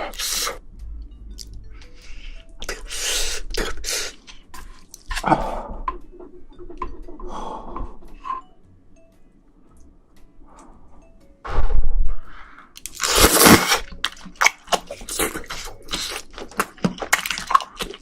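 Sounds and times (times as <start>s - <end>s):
chewing: 12.8s - 18.0s.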